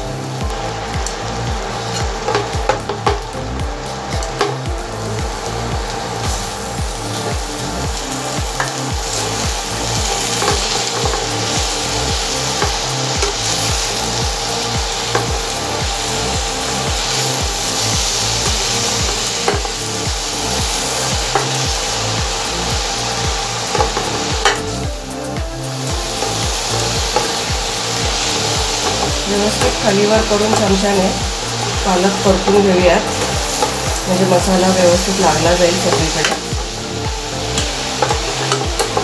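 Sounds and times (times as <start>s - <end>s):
spinach sizzling in a pan: 0.0s - 39.0s
spoon knocking a pan: 1.9s - 3.4s, 4.2s - 4.8s, 8.4s - 15.6s, 16.4s - 22.4s, 23.3s - 24.7s, 26.0s - 36.8s, 37.5s - 39.0s.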